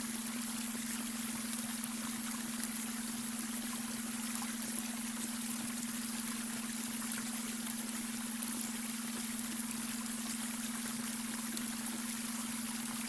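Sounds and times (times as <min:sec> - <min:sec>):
water trickling over stones: 0:00.0 - 0:13.0.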